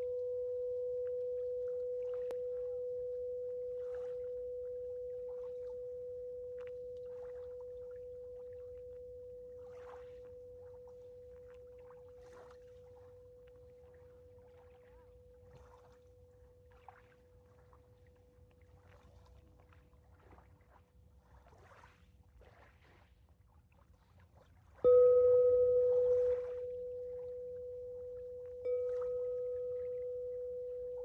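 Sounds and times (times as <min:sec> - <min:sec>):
singing bowl ringing: 0:00.0 - 0:15.9, 0:24.8 - 0:31.0.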